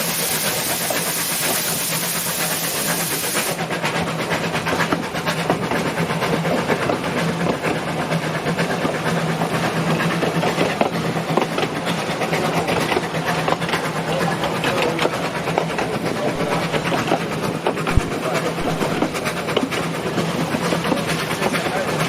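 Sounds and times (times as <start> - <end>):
rapid mechanical rattle: 0.0 - 22.0
steam hissing: 0.0 - 22.0
steady low hum: 13.2 - 21.9.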